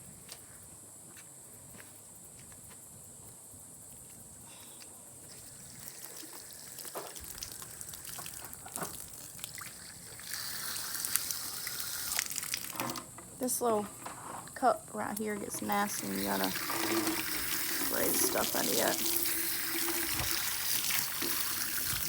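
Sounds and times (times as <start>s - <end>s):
water trickling and splashing: 5.3s - 13.0s, 15.2s - 22.0s.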